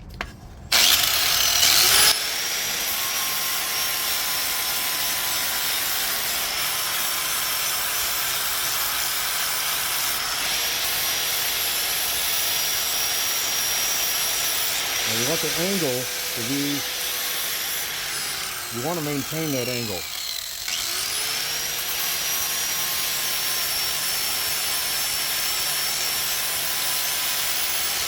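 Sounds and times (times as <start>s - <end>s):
angle grinder whining: 0.7s - 28.0s
grinding hiss: 14.6s - 20.6s.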